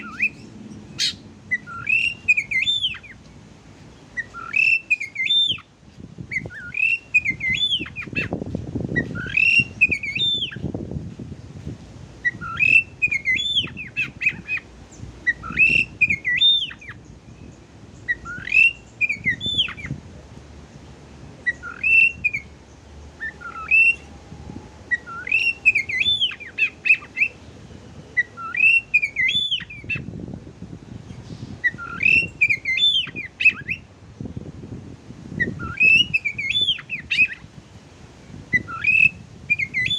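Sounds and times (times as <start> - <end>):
bird whistling song: 0.0 - 3.2, 4.0 - 10.8, 12.2 - 20.0, 21.4 - 22.6, 23.2 - 24.2, 24.8 - 27.4, 28.1 - 30.3, 31.1 - 33.9, 35.3 - 37.6, 38.2 - 39.9.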